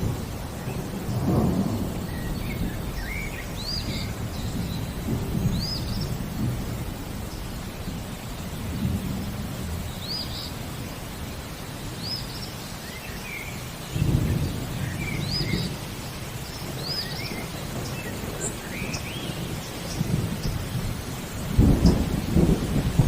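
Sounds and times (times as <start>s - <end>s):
steady rain: 0.0s - 23.0s
thunder rumbling: 0.0s - 23.0s
lower bird chirps: 1.6s - 6.2s, 12.0s - 20.8s.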